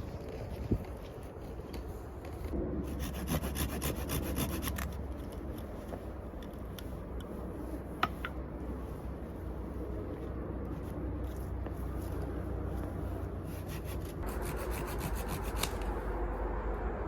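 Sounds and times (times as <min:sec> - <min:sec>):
steady low rumble: 0:00.0 - 0:17.0
scraping strokes on wood: 0:02.9 - 0:08.9, 0:13.4 - 0:16.0.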